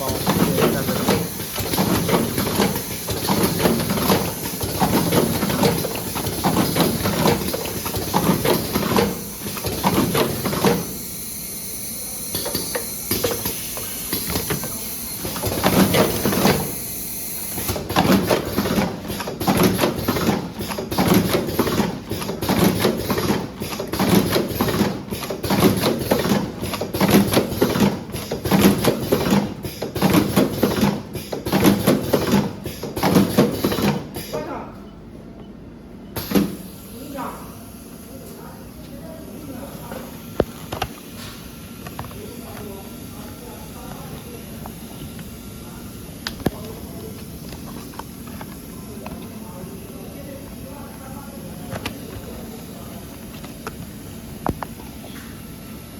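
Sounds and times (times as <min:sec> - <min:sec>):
cartoning machine running: 0:00.0 - 0:34.3.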